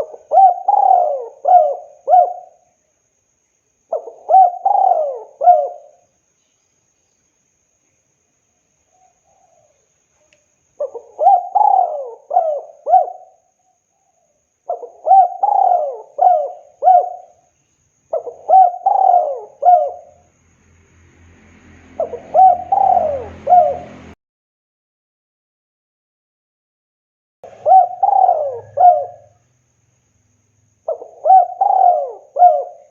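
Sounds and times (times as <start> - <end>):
dove cooing: 0.0 - 2.7, 3.9 - 6.0, 10.8 - 13.5, 14.7 - 17.4, 18.1 - 20.2, 22.0 - 24.2, 27.5 - 29.4, 30.9 - 32.9.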